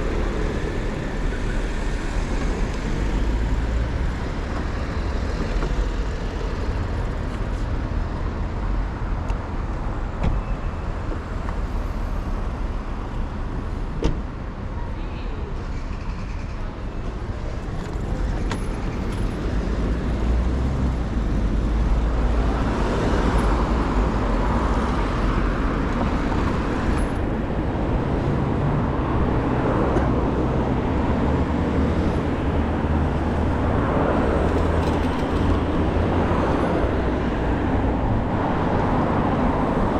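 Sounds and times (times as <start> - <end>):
cars passing: 15.4 - 39.9.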